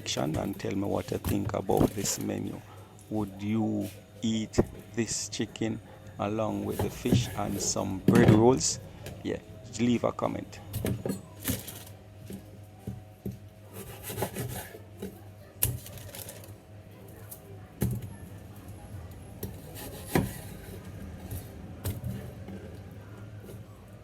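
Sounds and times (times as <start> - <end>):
knife scraping on cutting board: 13.7 - 14.8, 19.5 - 20.8.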